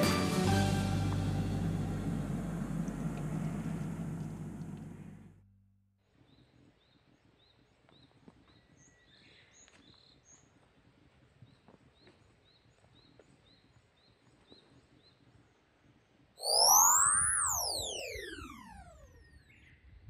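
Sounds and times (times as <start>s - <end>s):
higher bird chirps: 16.4s - 18.9s.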